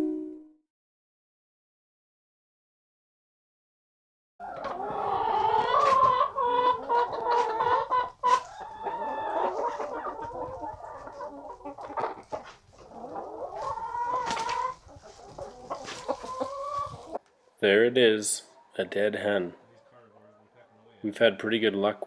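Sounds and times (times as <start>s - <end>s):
chickens clucking and calling: 4.4s - 17.6s, 18.4s - 21.2s.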